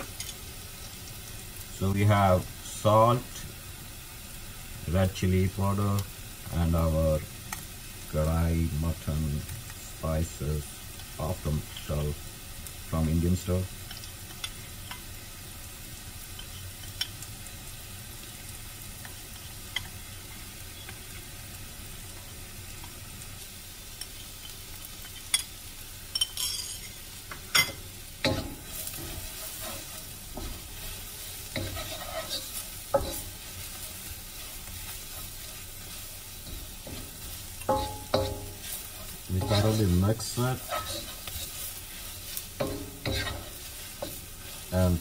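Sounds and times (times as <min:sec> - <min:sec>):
onions sizzling in oil: 0:00.0 - 0:45.0
light ticks of spices: 0:09.4 - 0:15.2, 0:16.2 - 0:26.3
wooden spoon scraping wok: 0:26.6 - 0:45.0.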